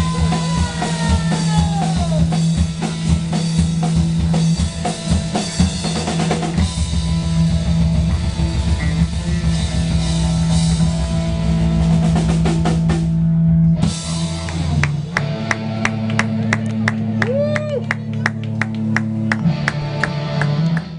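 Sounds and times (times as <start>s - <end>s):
pounding drum kit: 0.0s - 17.7s
live rock band playing: 0.0s - 20.9s.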